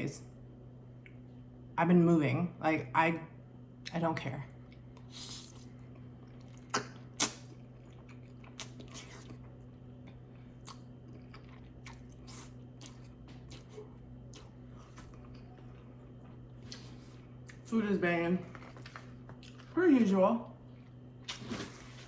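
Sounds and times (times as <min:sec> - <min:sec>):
faint low hum: 0:00.0 - 0:22.0
person chewing food: 0:04.6 - 0:17.7, 0:18.5 - 0:19.8.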